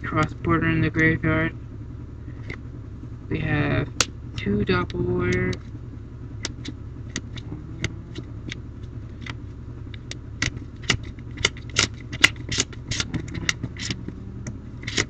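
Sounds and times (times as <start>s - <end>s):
low hum: 0.0s - 15.0s
cards clicking and flicking: 9.2s - 15.0s.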